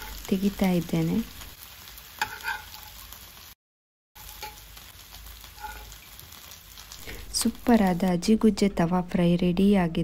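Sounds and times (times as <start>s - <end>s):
slices sizzling in oil: 0.0s - 3.6s, 4.2s - 9.8s
metal spatula scraping a pan: 2.2s - 3.0s, 5.5s - 6.0s.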